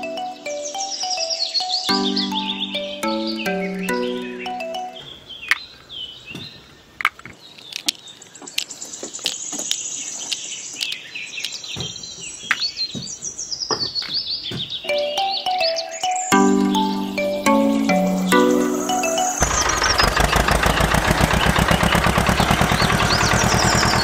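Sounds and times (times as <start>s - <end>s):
background music: 0.0s - 5.0s, 14.9s - 19.5s
birds chirping: 0.0s - 24.0s.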